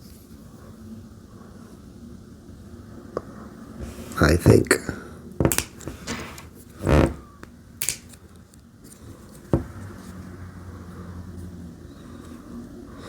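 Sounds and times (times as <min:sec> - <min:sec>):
plastic bricks clicking together: 0:07.8 - 0:08.1.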